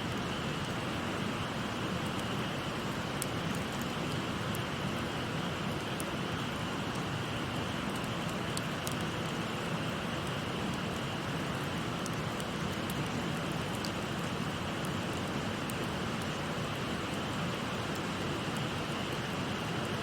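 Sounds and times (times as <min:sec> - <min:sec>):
river water babbling: 0:00.0 - 0:20.0
wood fire crackling: 0:05.8 - 0:18.6.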